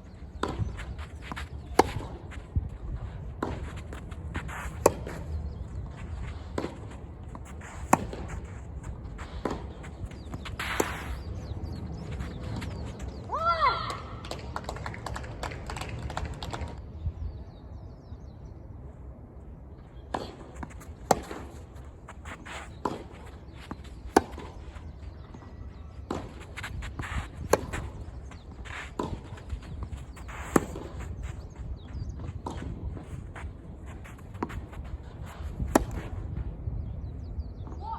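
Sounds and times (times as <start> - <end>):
racket striking tennis ball: 3.4 - 5.4, 6.0 - 13.2, 20.2 - 24.6, 26.1 - 31.6, 32.3 - 36.2.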